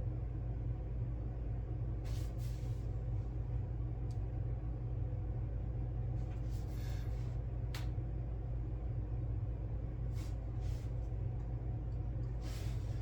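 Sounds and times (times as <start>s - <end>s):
steady low hum: 0.0s - 13.0s
small click: 7.7s - 8.0s.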